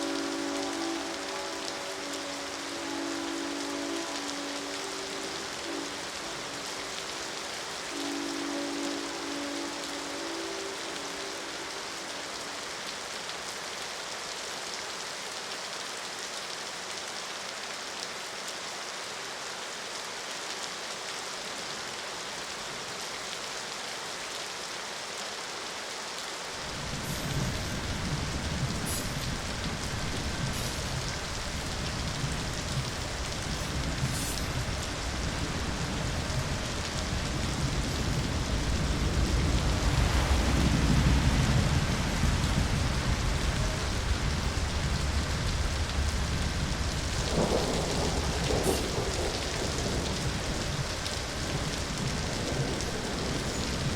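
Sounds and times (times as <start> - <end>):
heavy rain: 0.0 - 53.9
deep low rumble: 26.9 - 49.4.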